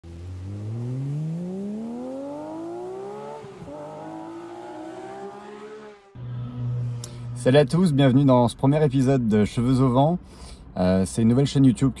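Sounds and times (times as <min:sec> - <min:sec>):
car engine accelerating: 0:00.0 - 0:08.3.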